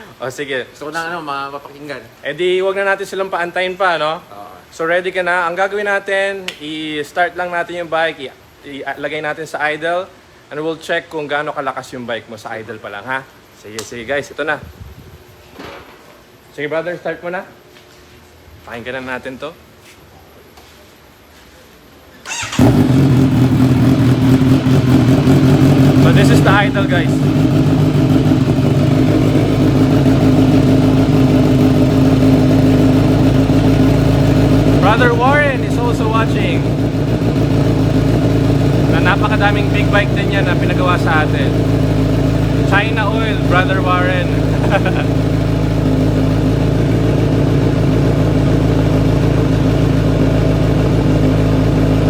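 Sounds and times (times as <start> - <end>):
motorcycle engine idling loudly: 22.3 - 52.0.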